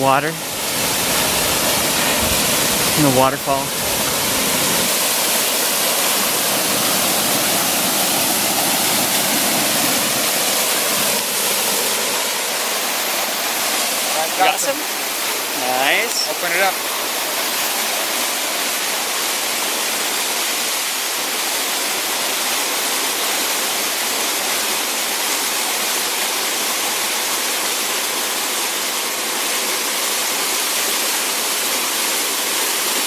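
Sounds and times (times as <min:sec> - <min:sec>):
small waterfall splashing: 0:00.0 - 0:33.0.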